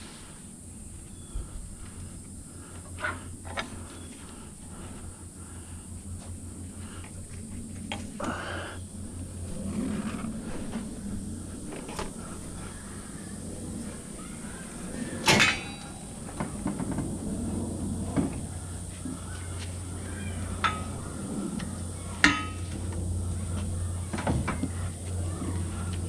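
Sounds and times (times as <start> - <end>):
low steady hum: 0.0 - 26.0
scrap metal clanging: 15.2 - 17.2, 20.5 - 23.6.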